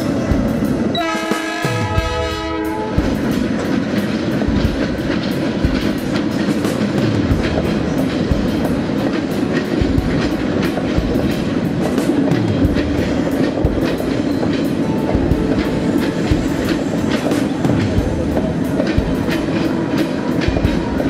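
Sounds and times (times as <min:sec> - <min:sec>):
train rumble: 0:00.0 - 0:21.0
wheels clacking over rail joints: 0:00.0 - 0:21.0
train horn: 0:00.9 - 0:03.1.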